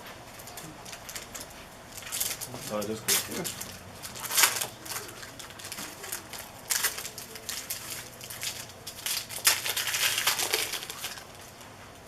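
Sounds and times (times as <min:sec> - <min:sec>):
card wrappers crinkling: 0:00.4 - 0:11.6.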